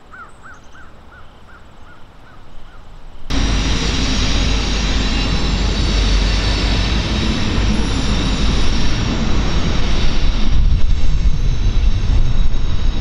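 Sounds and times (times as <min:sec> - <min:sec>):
freight train rolling past: 0:03.3 - 0:13.0.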